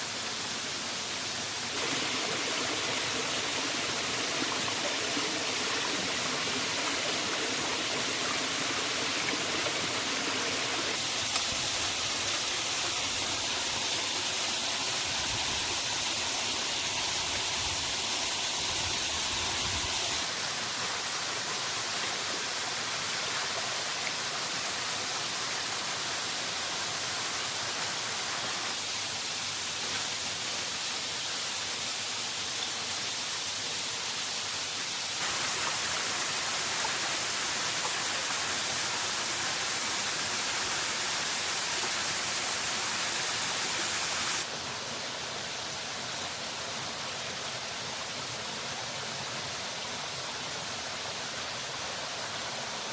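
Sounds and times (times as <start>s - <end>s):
waterfall roaring: 1.8s - 11.0s.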